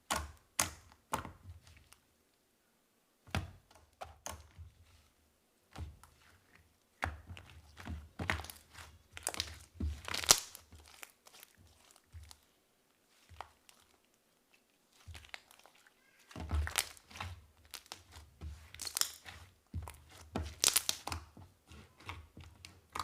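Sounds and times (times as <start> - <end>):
slime squished by hand: 5.8 - 23.0.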